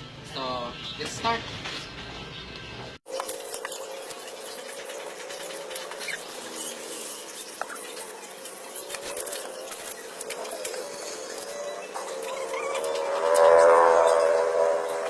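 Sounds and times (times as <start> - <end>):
paper and card rustling: 3.1 - 13.4.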